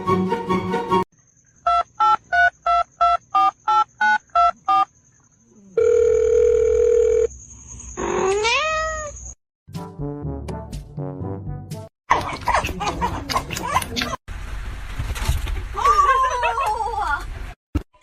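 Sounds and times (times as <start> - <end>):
steady phone tone: 5.8 - 7.3
cat meowing: 8.2 - 9.2.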